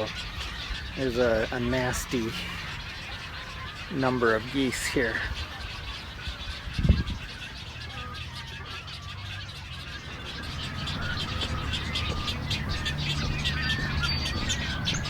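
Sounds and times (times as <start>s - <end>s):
waterbirds calling and chattering: 0.0s - 15.0s
low steady hum: 10.0s - 15.0s.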